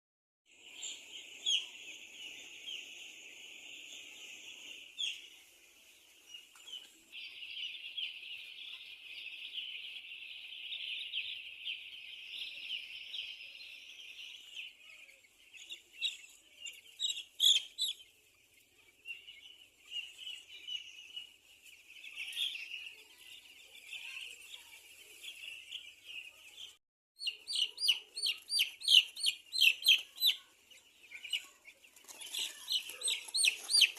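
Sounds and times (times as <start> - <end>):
chickens chirping: 0.6 - 33.9.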